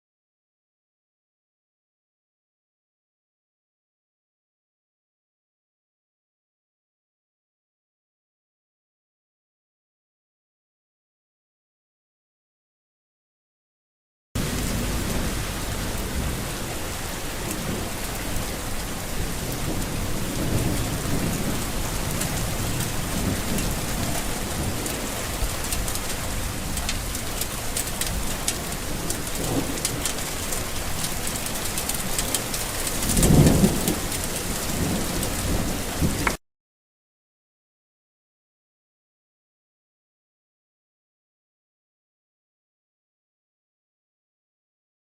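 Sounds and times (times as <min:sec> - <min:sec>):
heavy rain falling: 0:14.4 - 0:36.4
low roll of thunder: 0:14.4 - 0:36.4
rain drops splatting: 0:14.4 - 0:36.4.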